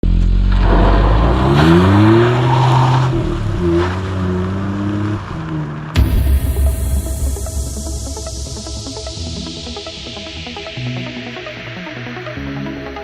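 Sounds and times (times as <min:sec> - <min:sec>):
electronic music: 0:06.0 - 0:13.0
sharp hit: 0:06.0 - 0:13.0.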